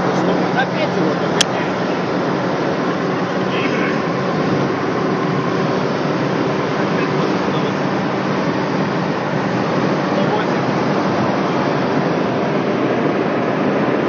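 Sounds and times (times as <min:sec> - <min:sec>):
car engine drone: 0:00.0 - 0:14.0
road and wind noise: 0:00.0 - 0:14.0.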